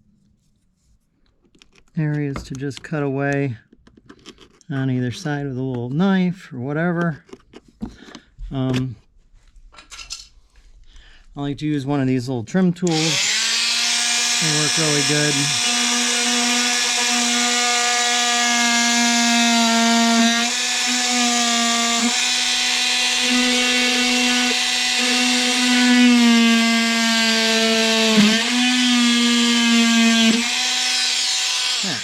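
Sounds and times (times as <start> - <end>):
electric trim tool whining: 12.9 - 32.0.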